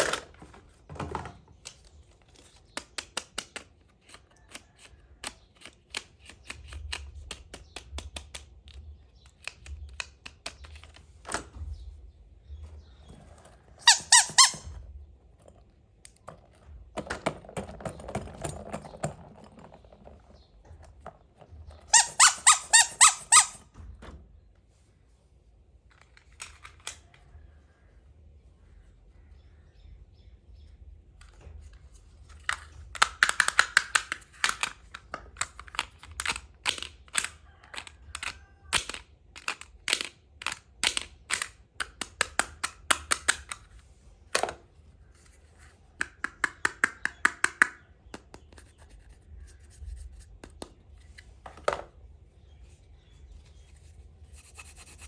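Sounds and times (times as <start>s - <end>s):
plastic toy pieces clicking: 2.4s - 11.0s, 32.3s - 44.4s
high squeaks: 13.7s - 14.8s, 21.8s - 23.7s.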